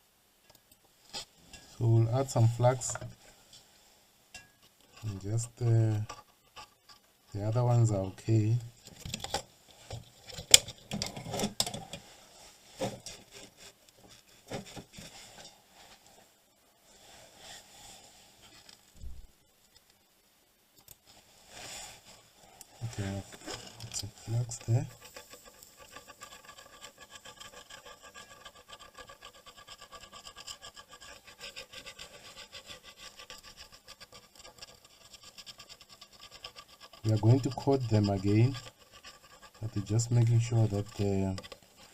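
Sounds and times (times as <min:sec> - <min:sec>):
hand tool scraping circuit board: 0:22.8 - 0:41.9.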